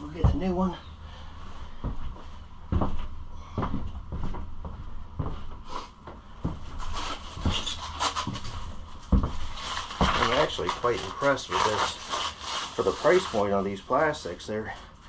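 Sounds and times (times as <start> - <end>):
rustling and scraping: 6.4 - 14.9.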